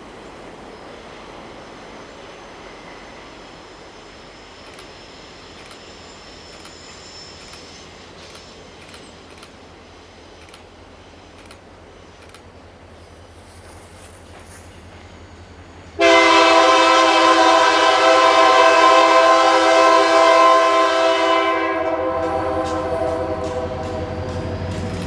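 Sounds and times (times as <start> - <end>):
train wheels rumbling on rail: 0.0 - 25.0
faint wheel squeal: 2.6 - 10.7
wheels clicking over rail joints: 22.6 - 25.0.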